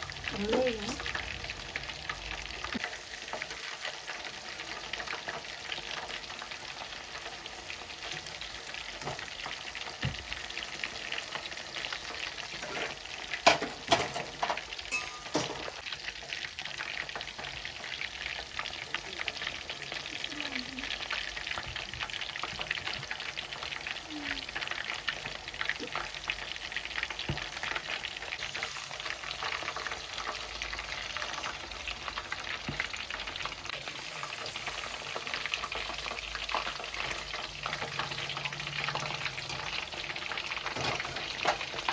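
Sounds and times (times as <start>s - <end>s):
food frying in hot oil: 0.0s - 41.9s.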